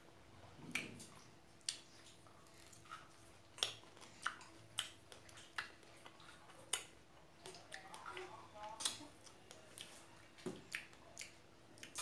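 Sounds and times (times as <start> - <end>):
faint steady hum: 0.0 - 12.0
wet mouth clicks and smacks: 0.6 - 8.0, 10.6 - 12.0.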